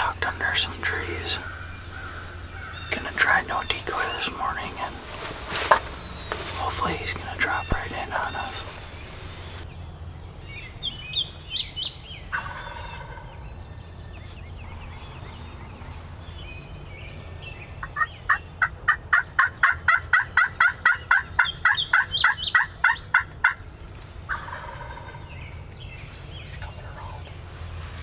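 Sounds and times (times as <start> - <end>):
wild turkeys calling: 0.0 - 9.6, 11.9 - 15.4, 17.5 - 25.9.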